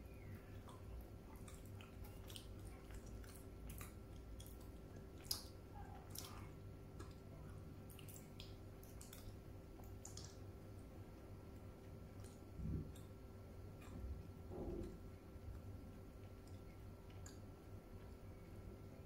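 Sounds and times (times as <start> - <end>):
wet mouth chewing clicks: 0.5 - 10.4.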